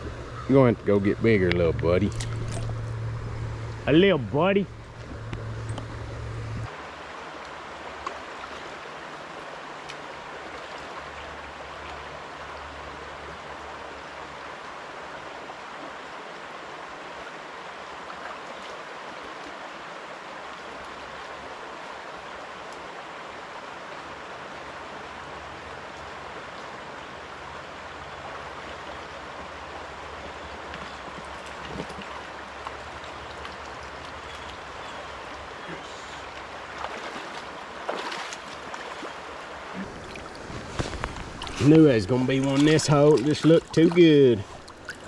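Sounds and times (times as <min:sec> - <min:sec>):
river water rushing: 0:01.8 - 0:45.0.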